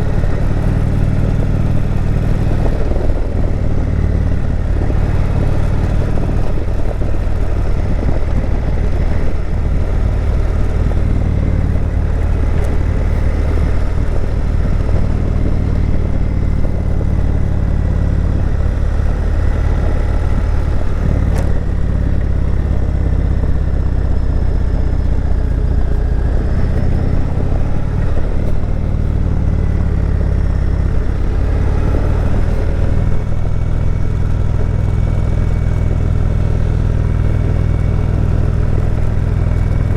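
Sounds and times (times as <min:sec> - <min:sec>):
motorcycle engine rumbling: 0:00.0 - 0:39.9
riding wind noise: 0:00.0 - 0:39.9.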